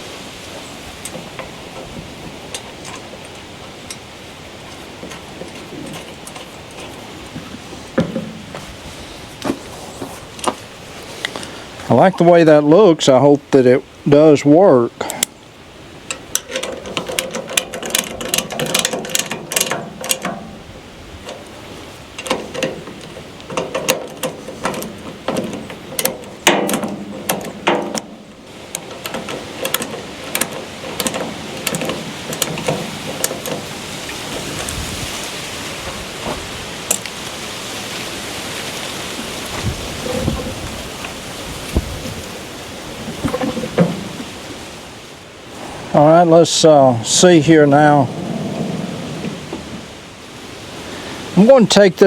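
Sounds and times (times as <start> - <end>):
rain hissing: 0.0 - 16.6, 24.2 - 52.0
metal tools clanking: 0.6 - 8.6, 16.1 - 34.7
ratchet clicks: 16.1 - 20.4.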